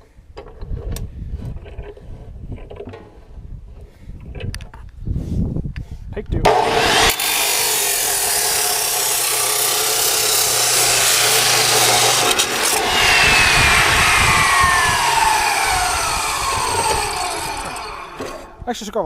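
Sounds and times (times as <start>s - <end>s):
chop saw cutting metal pipe: 6.5s - 18.6s
saw blade whine spinning down: 6.5s - 18.6s.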